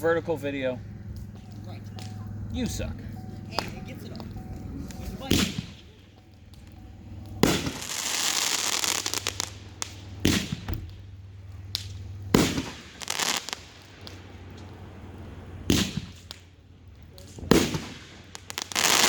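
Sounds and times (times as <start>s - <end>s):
fireworks crackling: 0.0s - 19.0s
fireworks booming: 0.8s - 16.6s, 17.2s - 19.0s
small firework pops: 1.1s - 2.2s, 4.9s - 5.9s, 6.5s - 14.8s, 15.7s - 19.0s.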